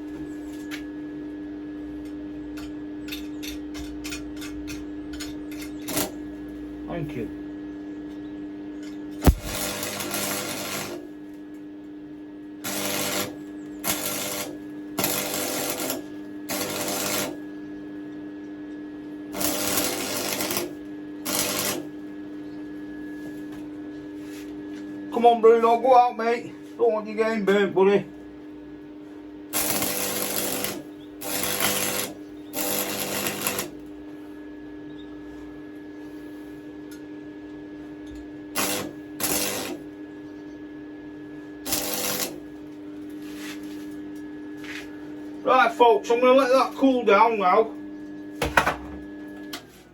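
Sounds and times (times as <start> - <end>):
steady hum: 5.0 - 49.6
welding arc crackling: 5.8 - 6.2, 9.2 - 11.2, 12.6 - 17.4, 19.3 - 22.0, 29.5 - 33.9, 38.6 - 40.0, 41.6 - 42.8.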